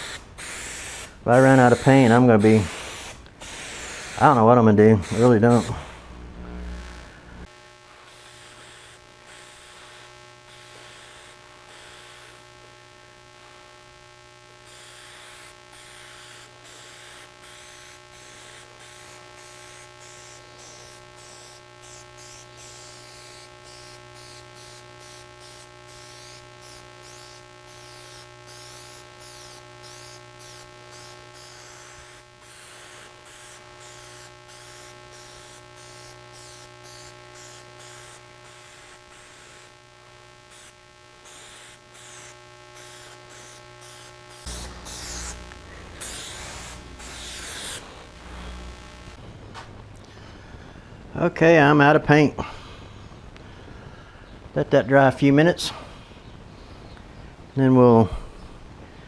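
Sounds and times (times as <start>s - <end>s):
spray can hissing: 0.0s - 6.3s, 8.1s - 12.4s, 14.7s - 39.8s, 40.5s - 49.2s
electrical hum: 0.0s - 59.0s.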